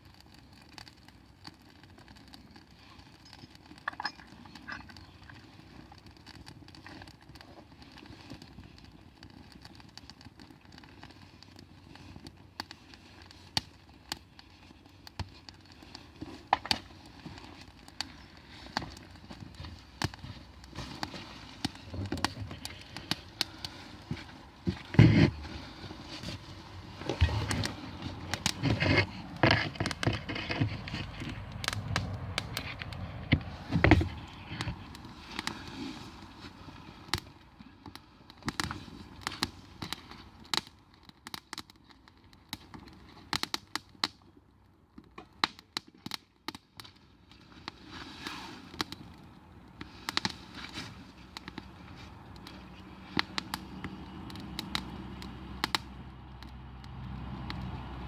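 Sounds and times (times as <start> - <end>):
campfire crackling and popping: 0.0 - 58.0
handling noise: 18.6 - 31.4.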